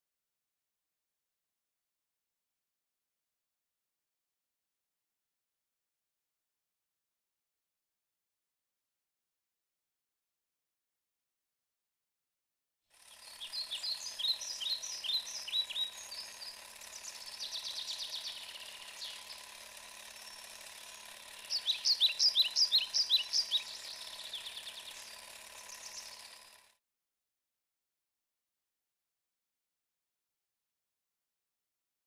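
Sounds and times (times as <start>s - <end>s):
songbirds chirping and trilling: 13.1s - 26.5s.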